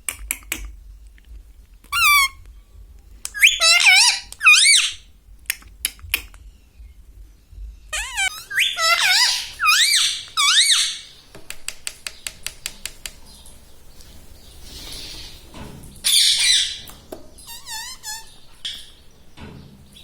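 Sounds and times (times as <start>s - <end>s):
parakeet clicks: 0.0s - 1.2s, 5.4s - 6.4s, 11.3s - 13.3s
parakeet screeching: 1.9s - 2.4s, 3.3s - 5.1s, 7.9s - 11.2s, 16.1s - 18.9s
parakeet warbling calls: 1.9s - 2.4s, 3.3s - 5.0s, 7.9s - 11.1s, 16.1s - 18.9s.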